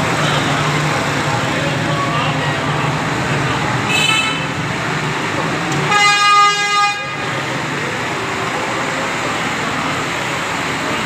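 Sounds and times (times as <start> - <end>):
engine and road noise: 0.0 - 11.0
truck horn: 3.9 - 4.6, 5.8 - 7.4.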